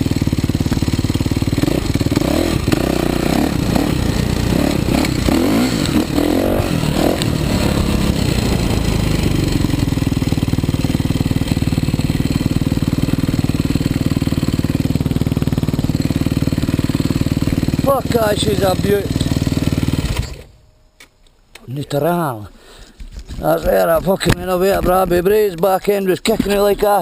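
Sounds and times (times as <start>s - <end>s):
motocross bike engine revving: 0.0s - 20.5s.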